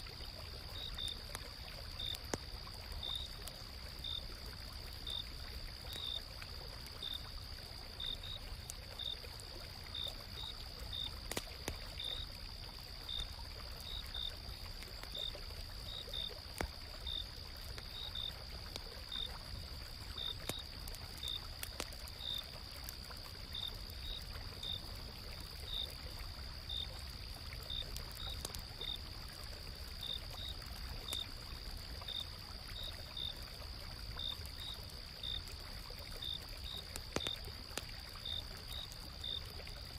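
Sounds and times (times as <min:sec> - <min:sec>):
faint campfire crackles: 0:00.0 - 0:39.9.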